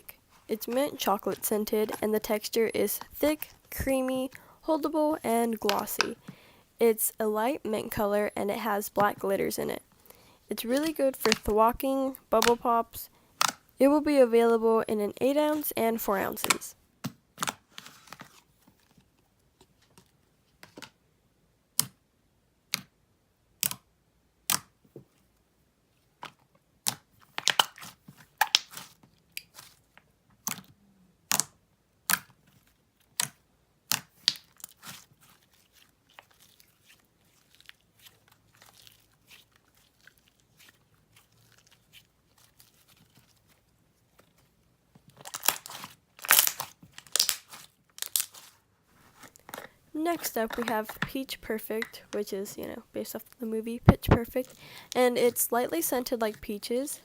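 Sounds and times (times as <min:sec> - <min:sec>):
slime sticky pops and crackles: 0:26.8 - 0:29.6, 0:31.3 - 0:32.4, 0:33.1 - 0:35.0, 0:45.3 - 0:48.4.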